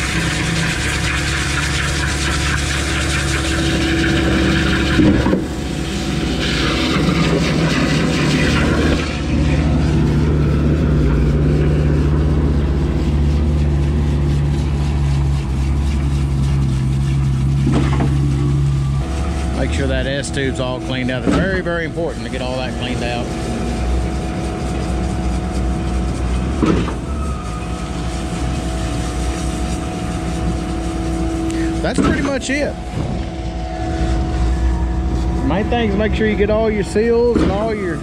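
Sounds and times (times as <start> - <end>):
water spray hissing: 0.0 - 21.1, 22.1 - 33.2
diesel engine running: 0.0 - 38.0.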